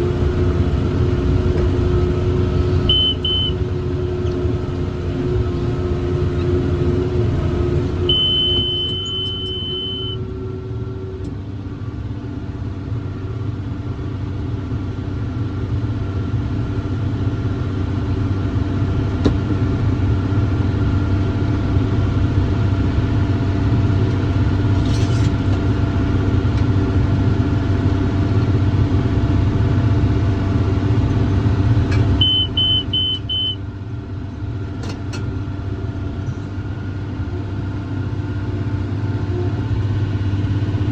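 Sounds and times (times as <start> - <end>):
tractor diesel engine under load: 0.0 - 40.9
electronic monitor beeps: 2.9 - 3.6, 8.1 - 10.2, 32.2 - 33.6.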